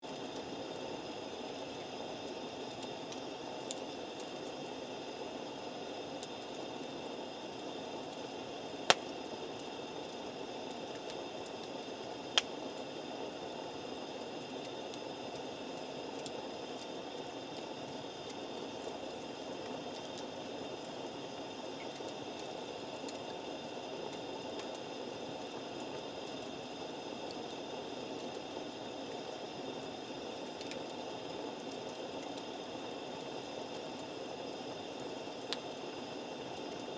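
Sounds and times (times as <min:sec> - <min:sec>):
campfire hissing: 0:00.0 - 0:36.9
burning wood popping: 0:08.8 - 0:09.7, 0:12.3 - 0:12.6.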